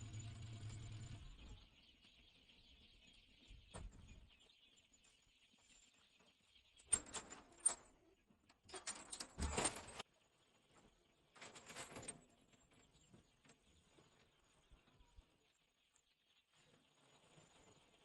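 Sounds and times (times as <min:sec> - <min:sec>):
chicks peeping: 0:00.0 - 0:08.4
rustling and scratching: 0:10.7 - 0:15.0.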